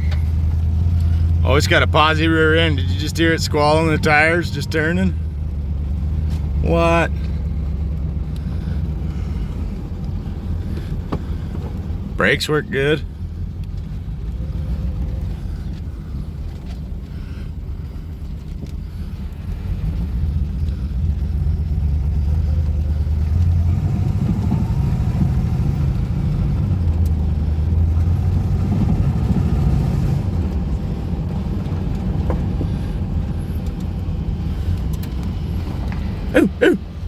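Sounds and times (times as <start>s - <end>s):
car engine accelerating: 0.0s - 37.0s.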